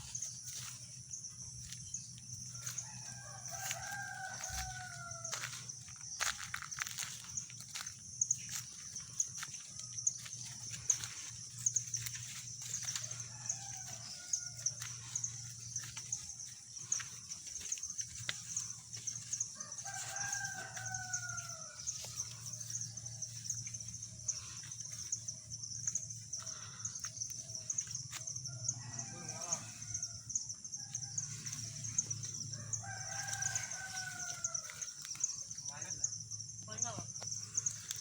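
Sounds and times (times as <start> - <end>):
rooster crowing: 2.4 - 7.9, 12.0 - 17.0, 18.2 - 23.8, 26.3 - 35.8.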